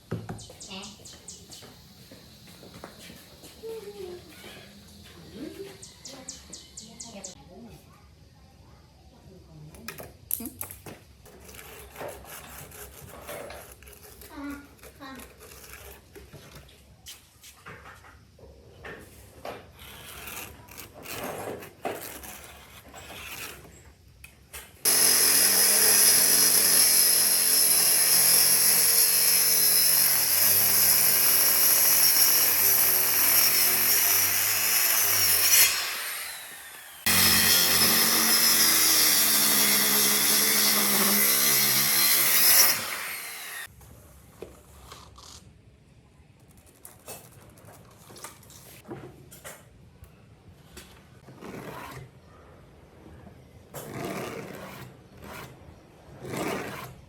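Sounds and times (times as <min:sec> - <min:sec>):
power tool working wood: 0:24.9 - 0:43.7.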